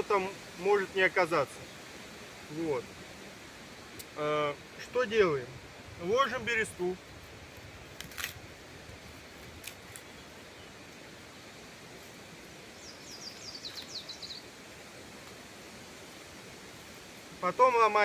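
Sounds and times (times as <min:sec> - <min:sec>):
faint forest ambience: 0:00.0 - 0:18.0
songbird singing: 0:00.0 - 0:18.0
sharp crackle: 0:07.5 - 0:08.5, 0:09.3 - 0:10.2, 0:13.0 - 0:14.3.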